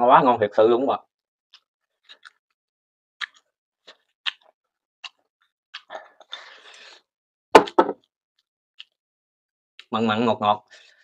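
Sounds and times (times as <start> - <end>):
person chewing food: 1.5 - 2.5, 3.2 - 6.9, 8.8 - 9.0
loud knock: 7.6 - 8.0.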